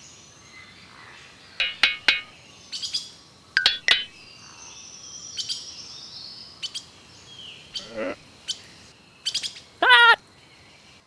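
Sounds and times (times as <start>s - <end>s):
birds chirping high sharp notes: 1.6s - 2.4s, 3.6s - 4.3s.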